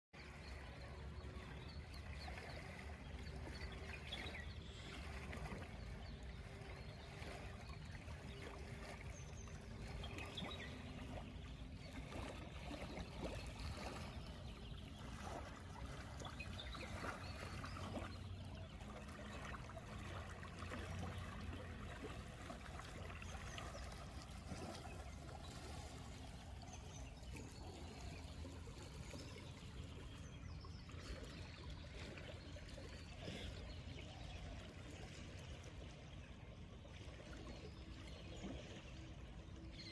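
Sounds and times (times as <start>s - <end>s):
water trickling in a canal: 0.2s - 39.9s.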